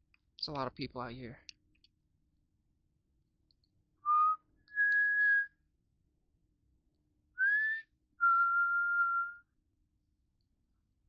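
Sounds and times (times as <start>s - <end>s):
person whistling notes: 4.0s - 5.6s, 7.4s - 9.5s.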